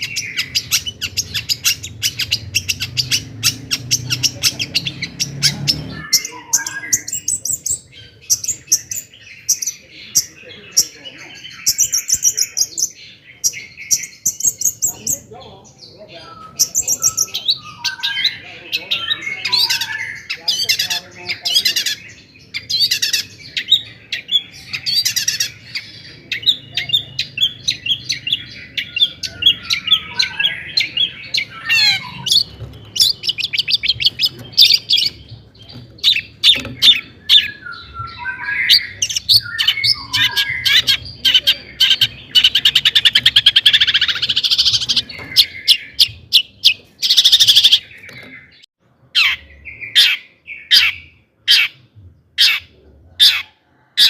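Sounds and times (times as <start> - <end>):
bird singing harsh chattering song: 0.0 - 53.6.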